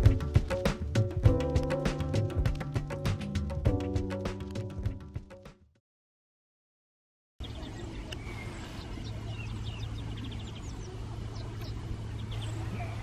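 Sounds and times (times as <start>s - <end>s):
small birds chirping: 7.4s - 13.0s.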